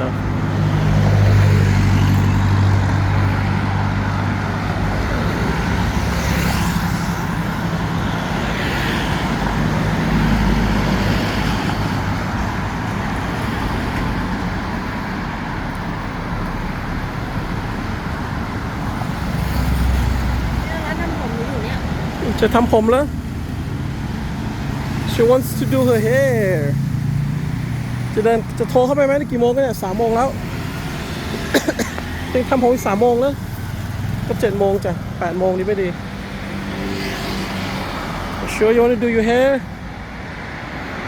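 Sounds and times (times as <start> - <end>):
road traffic noise: 0.0 - 41.0.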